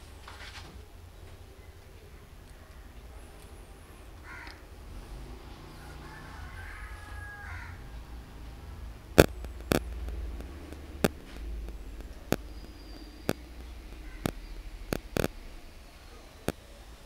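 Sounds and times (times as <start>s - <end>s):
faint bird calls: 1.2s - 8.5s, 9.2s - 17.0s
low hum: 7.7s - 17.0s
sharp clicks: 9.0s - 16.7s.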